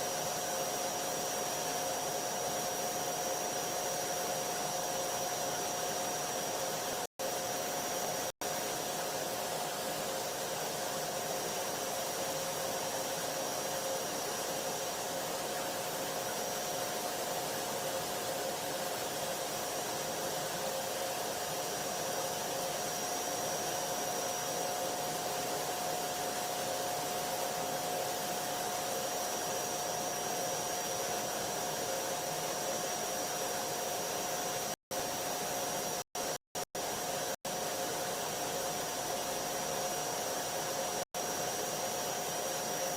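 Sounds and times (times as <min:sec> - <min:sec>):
vacuum cleaner motor running: 0:00.0 - 0:42.9.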